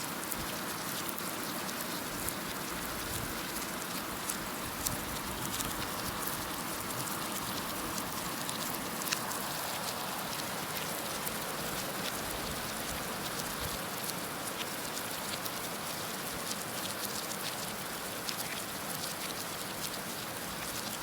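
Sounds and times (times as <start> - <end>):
raindrops ticking on a surface: 0.0 - 21.0.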